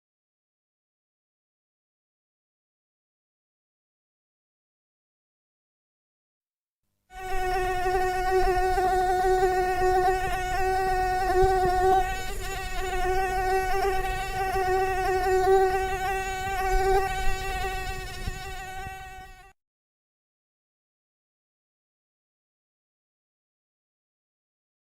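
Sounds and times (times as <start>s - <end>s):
buzzing drone: 7.2s - 19.5s.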